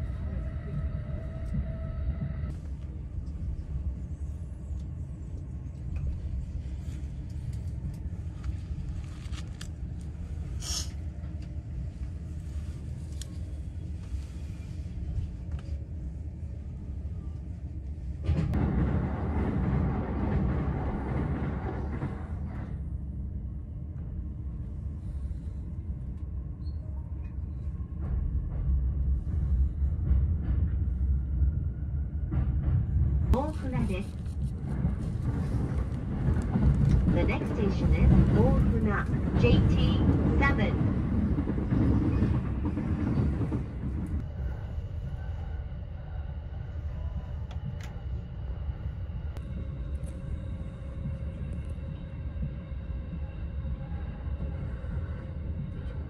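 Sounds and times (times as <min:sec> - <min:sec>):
train rushing noise: 0:00.0 - 0:23.4, 0:27.3 - 0:56.0
train interior rumble: 0:00.0 - 0:56.0.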